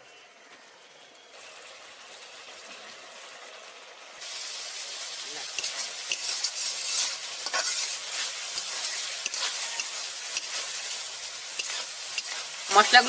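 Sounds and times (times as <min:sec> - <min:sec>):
spice paste sizzling in oil: 0:01.3 - 0:13.0
metal spatula scraping pan: 0:05.6 - 0:13.0.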